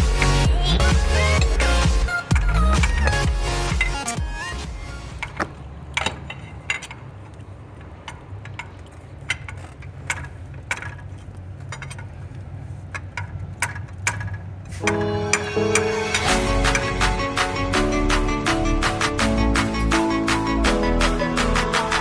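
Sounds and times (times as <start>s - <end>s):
hand tools clinking on metal: 1.2s - 4.2s, 5.0s - 12.3s.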